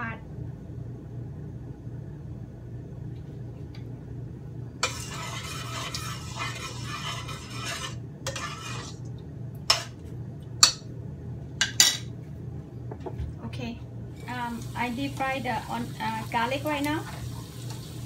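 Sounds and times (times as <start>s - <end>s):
steady low hum: 0.0s - 17.8s
garlic sizzling in hot oil: 4.8s - 9.0s, 14.2s - 18.0s.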